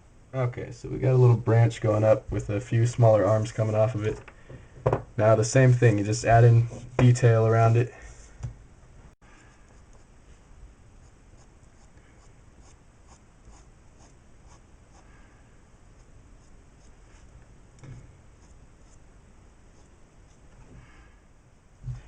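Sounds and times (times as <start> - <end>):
pencil scratching on paper: 11.4 - 11.9, 12.6 - 15.0, 18.4 - 19.0.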